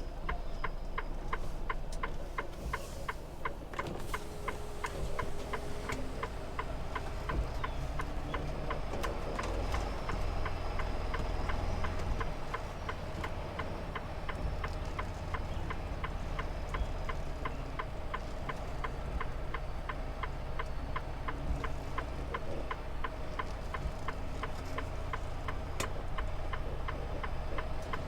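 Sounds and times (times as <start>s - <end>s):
road noise: 0.0s - 28.0s
truck engine rumble: 0.0s - 28.0s.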